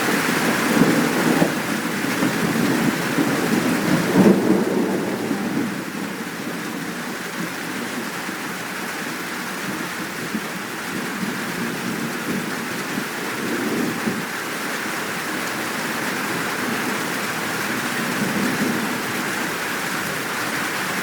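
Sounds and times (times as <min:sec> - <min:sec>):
heavy rain: 0:00.0 - 0:21.0
thunder rumbling: 0:00.2 - 0:08.0.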